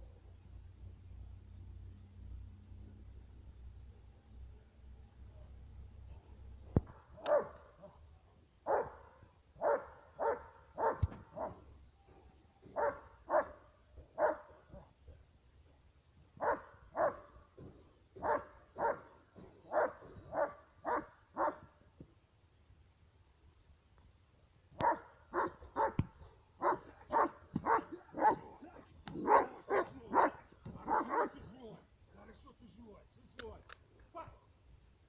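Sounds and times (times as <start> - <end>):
dog barking: 6.9 - 8.0, 8.6 - 11.7, 12.6 - 14.9, 16.4 - 17.3, 18.2 - 21.6, 24.8 - 28.6, 29.2 - 31.5
sharp clicks: 33.3 - 34.1.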